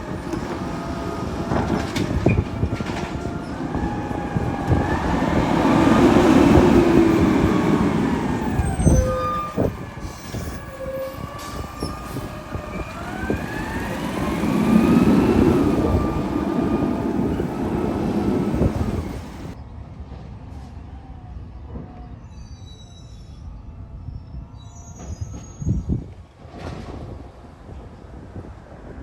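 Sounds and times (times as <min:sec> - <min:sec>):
garbage truck rumbling: 0:00.0 - 0:19.6
high gliding squeals: 0:00.0 - 0:19.6.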